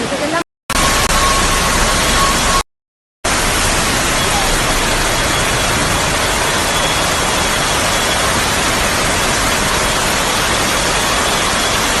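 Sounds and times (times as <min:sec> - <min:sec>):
rushing water: 0:03.3 - 0:12.0.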